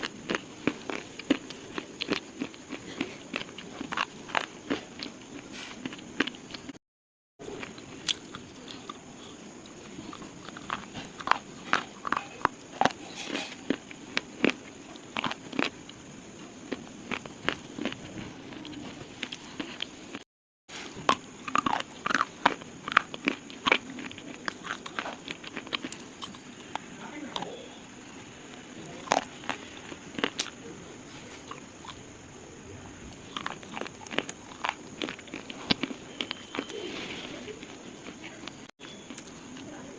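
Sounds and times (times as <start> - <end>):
slate crunching and cracking: 33.2 - 36.8.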